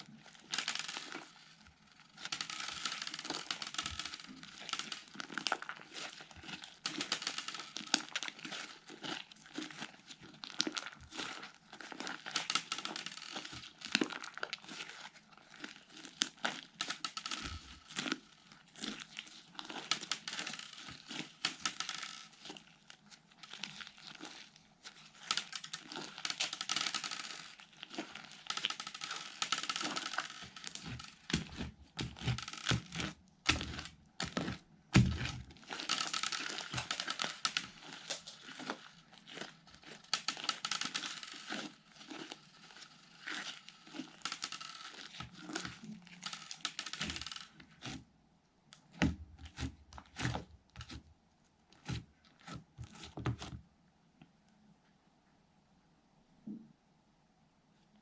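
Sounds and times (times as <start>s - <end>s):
slime squishing and popping: 0.2s - 48.0s, 48.7s - 51.0s.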